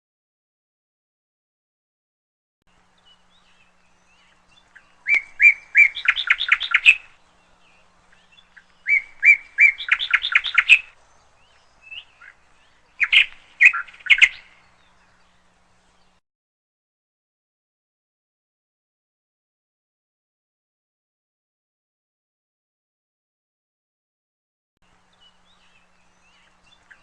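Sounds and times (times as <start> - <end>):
canary chirping: 3.5 - 7.2, 8.1 - 14.5.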